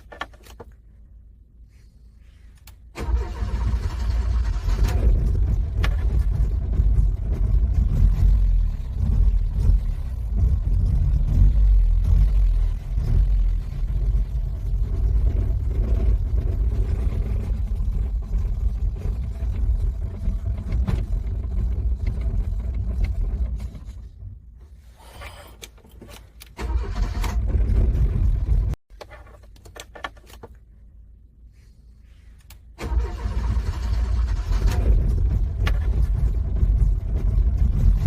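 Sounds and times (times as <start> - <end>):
car engine starter cranking: 3.0 - 6.7, 25.6 - 28.4, 32.8 - 37.5.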